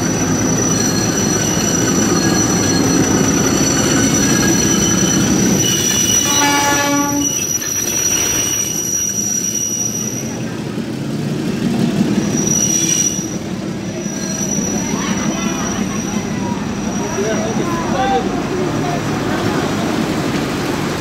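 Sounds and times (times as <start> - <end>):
wheels squealing: 0.0 - 18.4
train rumbling: 0.0 - 21.0
train horn blast: 5.6 - 7.4.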